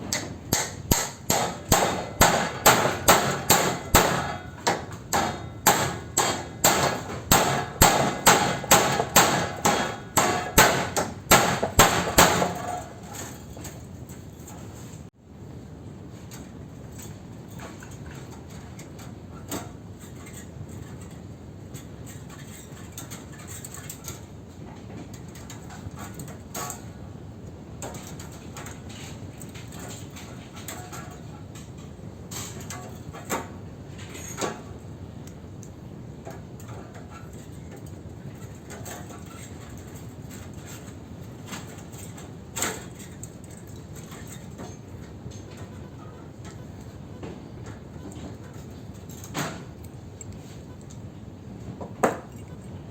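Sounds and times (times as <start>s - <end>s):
steady low background hum: 0.0s - 52.9s
sharp metal knock: 0.1s - 12.8s
light metallic clicks and scrapes: 16.2s - 47.0s, 47.6s - 51.1s.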